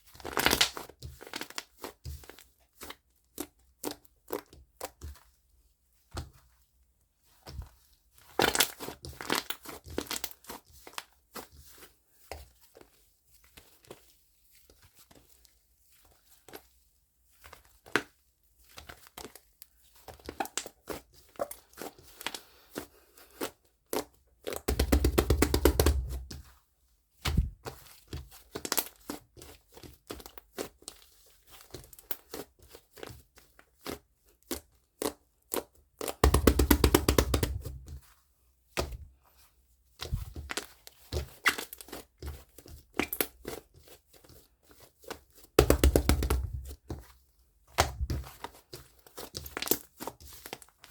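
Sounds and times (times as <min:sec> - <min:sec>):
dense crackling of slime: 0:23.4 - 0:26.4, 0:34.4 - 0:38.0, 0:45.6 - 0:46.9
slime squished by hand: 0:23.4 - 0:26.5, 0:33.8 - 0:38.1, 0:45.6 - 0:47.0, 0:47.7 - 0:50.6.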